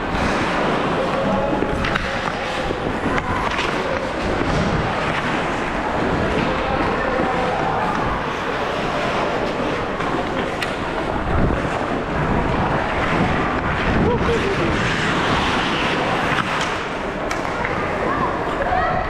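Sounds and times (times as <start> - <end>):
steady rush of noise: 0.0 - 19.0
hockey stick or puck clicks: 1.2 - 5.4, 9.5 - 10.8, 15.3 - 17.9.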